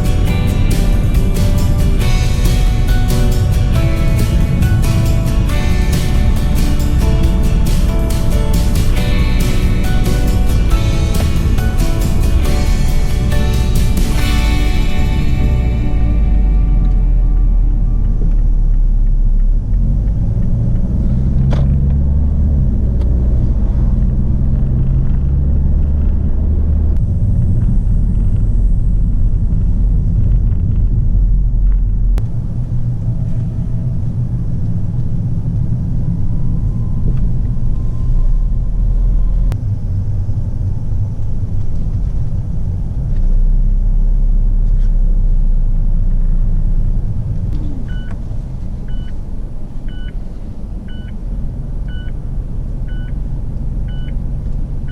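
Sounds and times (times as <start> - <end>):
car engine and road noise: 0.0 - 54.9
short beeps: 47.7 - 48.2, 48.9 - 49.2, 49.9 - 50.2, 50.9 - 51.1, 52.9 - 53.2, 53.9 - 54.2.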